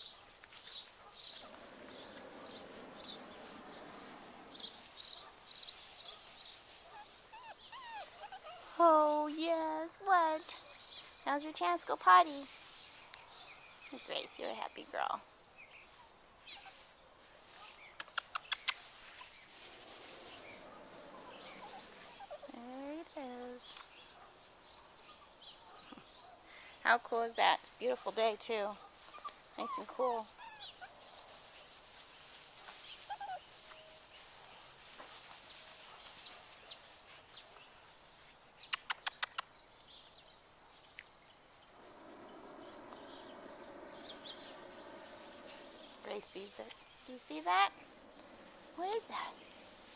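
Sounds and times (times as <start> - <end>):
birds chirping faintly: 0.0 - 49.9
steady rushing sound: 1.3 - 5.2, 41.7 - 47.0.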